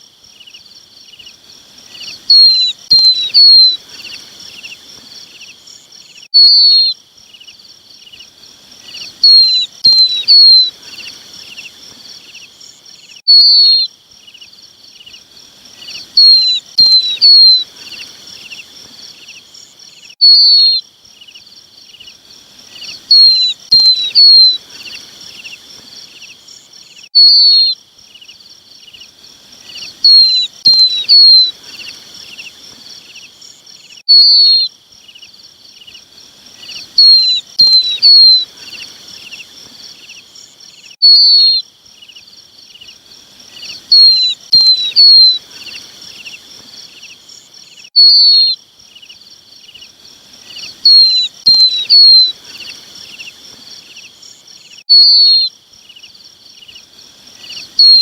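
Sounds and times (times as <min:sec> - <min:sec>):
lapwing chick calls: 0:01.9 - 0:04.8, 0:08.8 - 0:11.8, 0:13.2 - 0:13.9, 0:15.8 - 0:18.7, 0:20.2 - 0:20.8, 0:22.0 - 0:26.3, 0:27.1 - 0:27.8, 0:28.9 - 0:32.6, 0:36.6 - 0:39.5, 0:41.0 - 0:41.6, 0:42.7 - 0:46.4, 0:47.9 - 0:48.6, 0:49.7 - 0:53.4, 0:54.9 - 0:55.5, 0:57.4 - 0:58.0.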